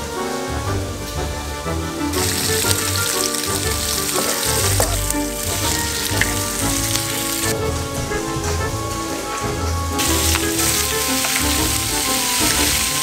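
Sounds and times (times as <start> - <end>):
soft background music: 0.0 - 13.0
meat sizzling in pans: 2.1 - 7.6, 10.0 - 13.0.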